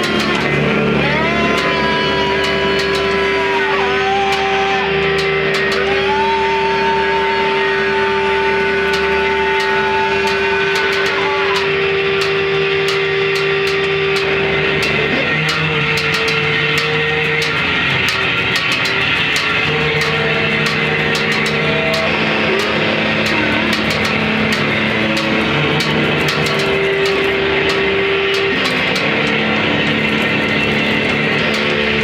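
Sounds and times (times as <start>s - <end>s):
crackling clicks: 0.0s - 32.0s
sliding high tones: 0.0s - 32.0s
steady drone: 0.0s - 32.0s.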